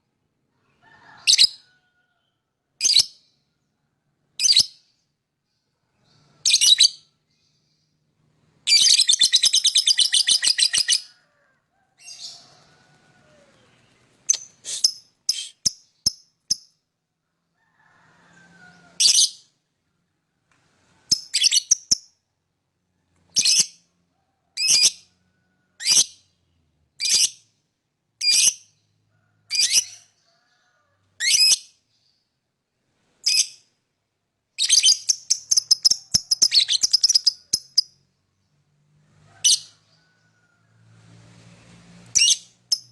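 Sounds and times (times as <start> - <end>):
lovebird chirping: 6.0 - 7.9, 8.6 - 11.1, 13.5 - 16.8, 21.1 - 22.1, 34.6 - 38.0, 42.2 - 42.9
lovebird chattering trill: 34.6 - 37.9.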